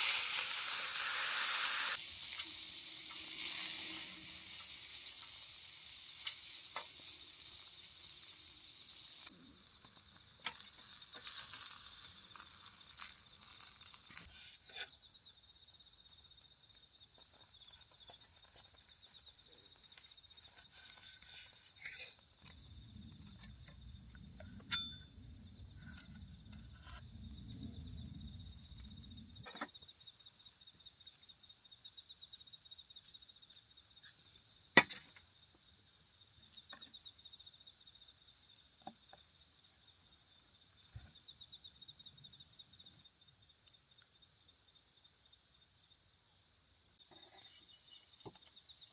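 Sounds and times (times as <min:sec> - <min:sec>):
night insects trilling: 0:00.0 - 0:48.9
low rumble: 0:22.6 - 0:29.4.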